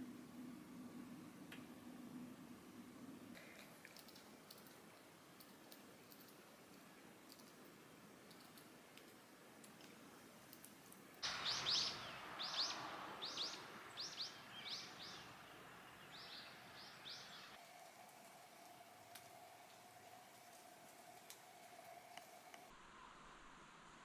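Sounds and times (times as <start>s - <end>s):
tiny clicks: 3.3s - 11.3s
birds chirping: 9.8s - 17.6s.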